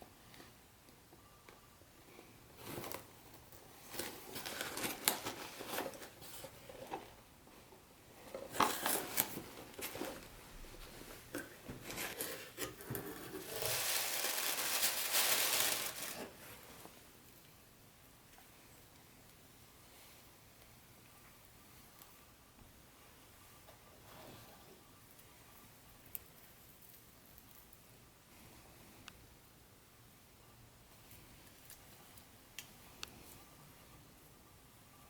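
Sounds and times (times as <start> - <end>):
packaging crinkling and rustling: 2.6 - 7.2, 8.2 - 16.9.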